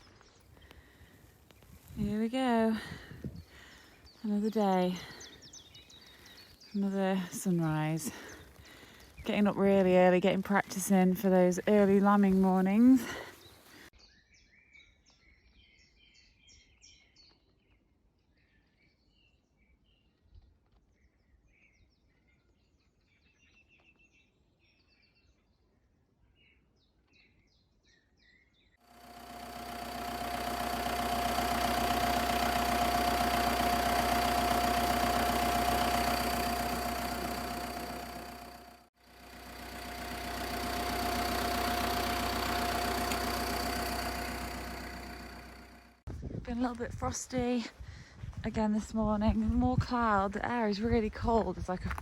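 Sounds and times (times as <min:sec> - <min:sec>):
faint bird song: 0:03.3 - 0:09.5, 0:13.0 - 0:28.8
loud engine drone: 0:28.9 - 0:46.0.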